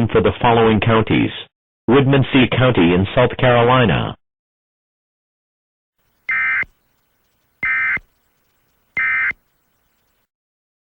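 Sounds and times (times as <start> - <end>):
buzzy digital data tones: 6.3 - 6.7, 7.6 - 8.1, 9.0 - 9.4.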